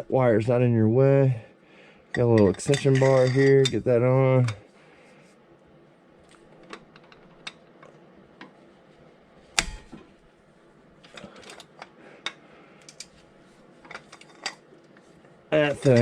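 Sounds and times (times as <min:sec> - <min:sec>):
sharp metal clank: 0:09.6 - 0:10.0.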